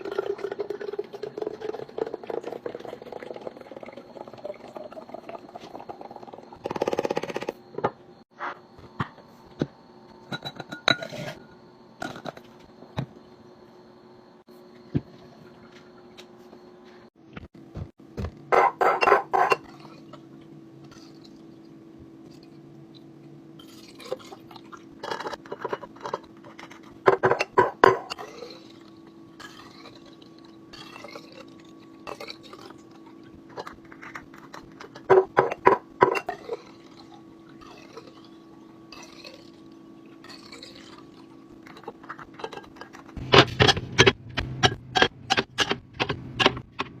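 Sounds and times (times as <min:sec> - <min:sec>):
steady low hum: 0:00.0 - 0:47.0
kitchen items clinking and clattering: 0:10.2 - 0:11.4, 0:12.0 - 0:12.6, 0:18.2 - 0:20.2, 0:23.6 - 0:28.8, 0:29.4 - 0:38.3, 0:40.2 - 0:47.0.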